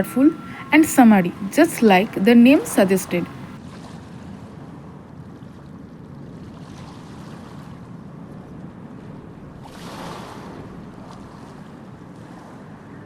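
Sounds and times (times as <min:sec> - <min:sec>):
background rumble and hiss: 0:00.0 - 0:03.6.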